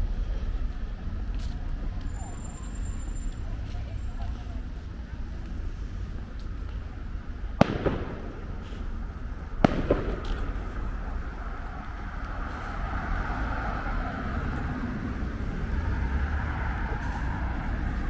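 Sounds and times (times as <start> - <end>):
traffic rumble: 0.0 - 18.0
fireworks crack: 7.4 - 18.0
fireworks bangs: 7.5 - 13.5.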